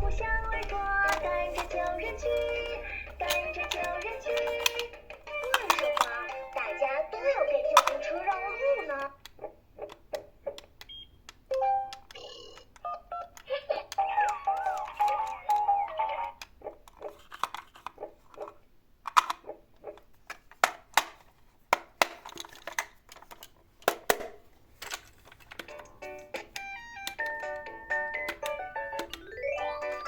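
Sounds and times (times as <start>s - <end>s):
toy cars clicking and knocking: 1.0s - 30.0s
plinky electronic melody: 28.1s - 30.0s.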